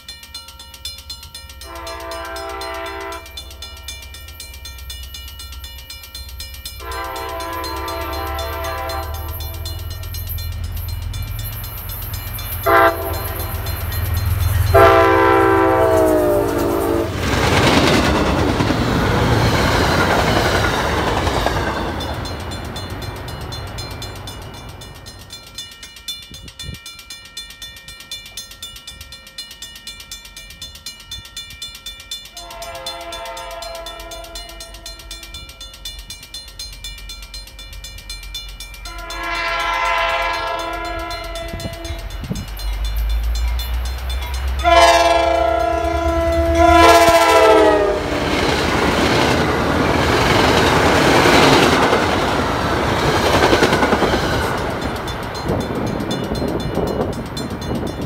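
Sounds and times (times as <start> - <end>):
coaches clattering on rails: 0.0 - 58.0
diesel locomotive engine rumbling: 0.0 - 58.0
train air horn blasts: 1.6 - 3.6, 6.8 - 9.8, 12.6 - 13.7, 14.6 - 17.2, 32.4 - 35.2, 38.9 - 42.2, 44.6 - 48.4.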